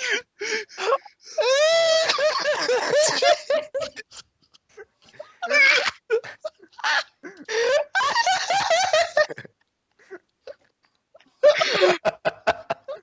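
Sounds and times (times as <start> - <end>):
young people laughing and shrieking: 5.2 - 9.3.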